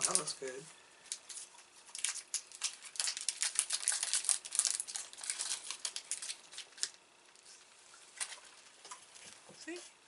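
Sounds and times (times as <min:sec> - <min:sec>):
plastic wrapper crinkling: 0:00.0 - 0:00.4, 0:01.1 - 0:07.5.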